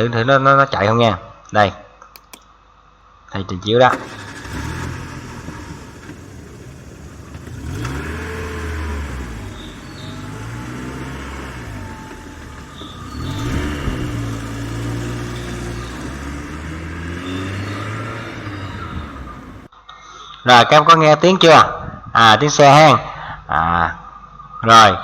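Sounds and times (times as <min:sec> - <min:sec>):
car engine revving: 0:03.9 - 0:19.7.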